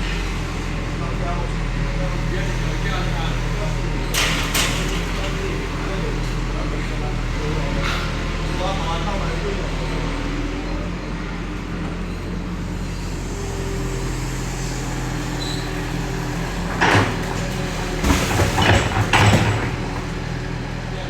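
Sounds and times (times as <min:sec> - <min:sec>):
heavy machinery diesel engine: 0:00.0 - 0:21.0
metallic clanks and bangs: 0:16.6 - 0:20.3.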